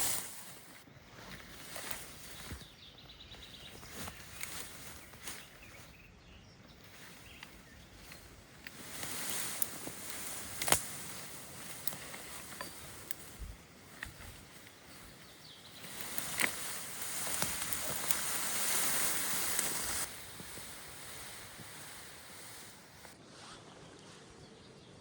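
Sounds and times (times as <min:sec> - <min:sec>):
outdoor rustling: 0:00.0 - 0:24.3
sharp clicks and snaps: 0:07.4 - 0:13.3.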